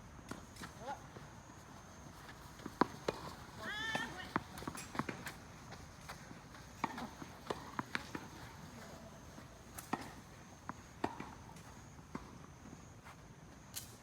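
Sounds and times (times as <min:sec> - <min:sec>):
tennis ball bouncing on court: 0:02.6 - 0:08.5, 0:09.8 - 0:12.3
tennis ball struck by rackets: 0:09.7 - 0:11.4.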